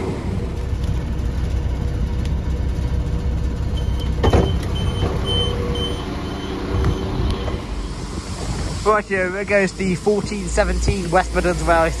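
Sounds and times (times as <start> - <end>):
diesel train engine idling: 0.0 - 12.0
door warning beeps: 3.8 - 8.0.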